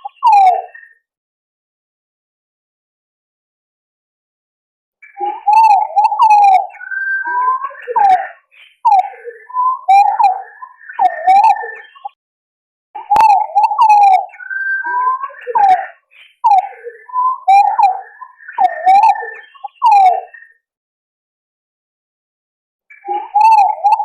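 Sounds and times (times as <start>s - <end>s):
pigeons whistling calls: 5.0s - 12.2s, 13.0s - 20.4s, 22.9s - 24.0s.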